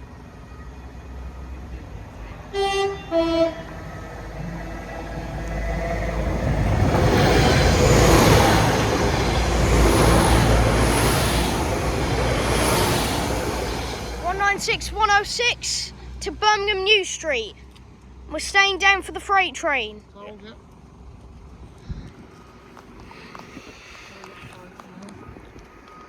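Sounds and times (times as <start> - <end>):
train rumble and rail noise: 0.0 - 26.0
two-tone train horn: 2.5 - 3.9.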